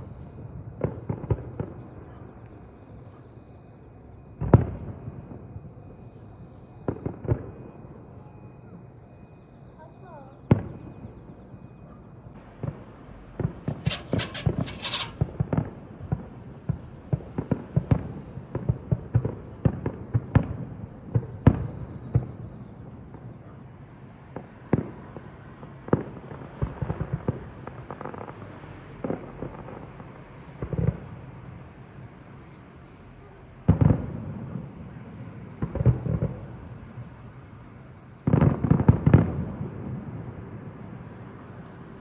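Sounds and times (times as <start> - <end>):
fireworks banging and popping: 13.7 - 15.4.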